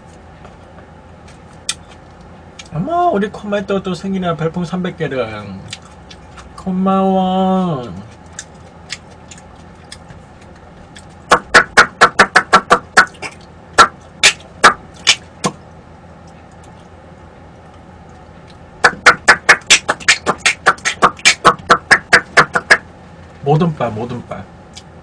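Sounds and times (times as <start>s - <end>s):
loud rapid sharp taps: 11.3s - 15.6s, 18.8s - 22.8s.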